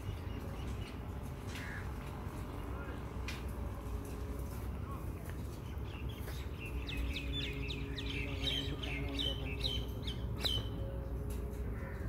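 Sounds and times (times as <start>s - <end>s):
bird chirping: 5.6s - 10.9s.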